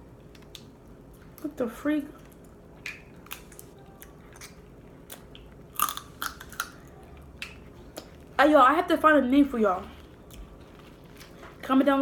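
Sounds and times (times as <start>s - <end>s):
person chewing with wet smacks: 2.2s - 8.3s.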